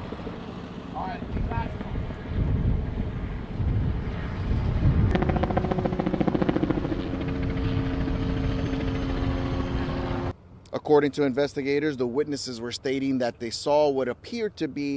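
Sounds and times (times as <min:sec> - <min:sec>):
helicopter rotor chop: 0:00.0 - 0:10.3
helicopter engine tone: 0:02.0 - 0:10.3.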